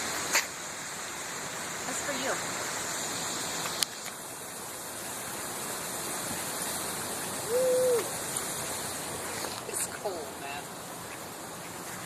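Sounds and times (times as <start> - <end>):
steady rushing noise: 0.0 - 12.0
hooting bird call: 7.4 - 8.3.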